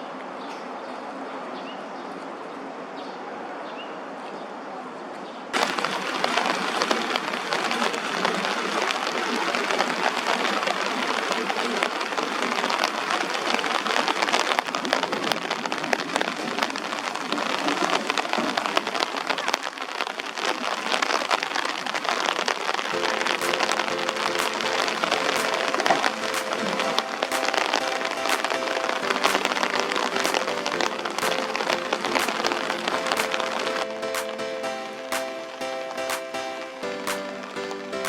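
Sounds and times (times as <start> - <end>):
heavy rain on hard surfaces: 5.6 - 38.0
steady musical tones: 22.9 - 38.0.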